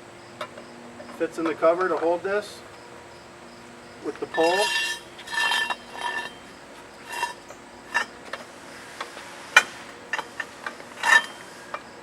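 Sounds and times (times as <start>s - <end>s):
metal tools clinking: 4.0s - 8.5s, 10.1s - 11.8s.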